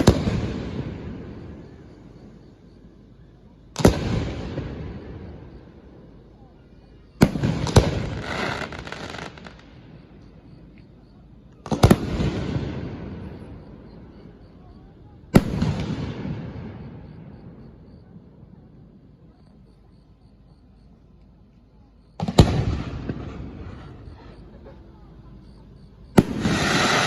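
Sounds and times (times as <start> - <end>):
firework booms rumbling: 0.0 - 2.6, 3.7 - 6.4, 7.2 - 10.2, 11.6 - 19.7, 22.0 - 27.0
firework crackle: 7.2 - 10.1, 26.1 - 27.0.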